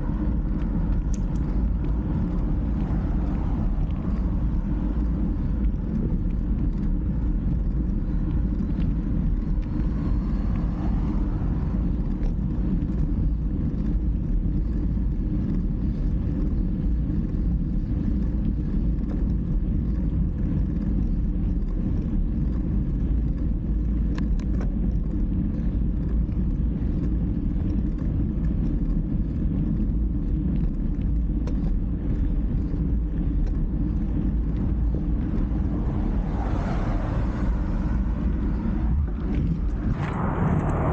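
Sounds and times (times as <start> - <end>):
wind and road noise rumble: 0.0 - 40.9.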